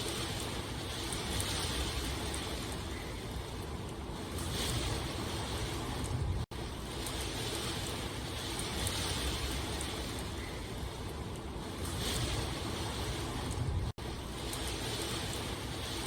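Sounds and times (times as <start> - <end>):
steady rain: 0.0 - 16.0
raindrop ticks: 0.9 - 5.1, 5.8 - 7.7, 8.4 - 12.4, 13.2 - 15.4.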